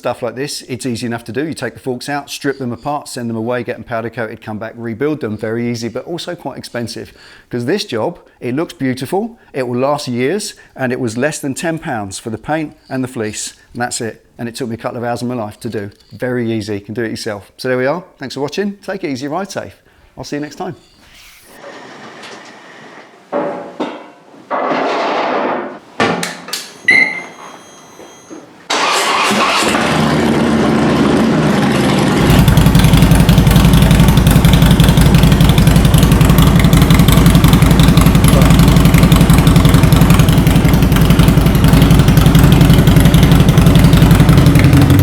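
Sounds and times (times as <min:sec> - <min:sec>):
clicks: 0:26.2 - 0:28.5
short beep: 0:26.6 - 0:28.4
motorcycle engine starting and running: 0:28.7 - 0:45.0.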